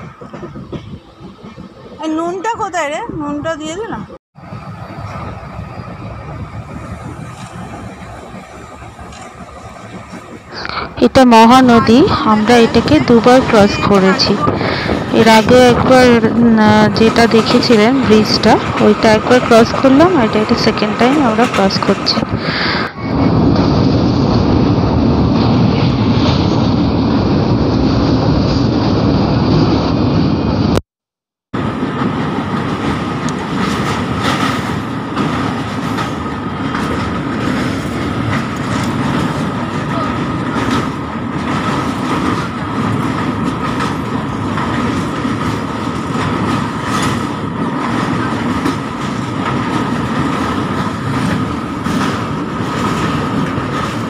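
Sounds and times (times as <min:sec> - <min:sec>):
train rumbling: 0:00.0 - 0:30.8, 0:31.6 - 0:54.0
wheels clacking over rail joints: 0:05.0 - 0:22.4, 0:31.6 - 0:54.0.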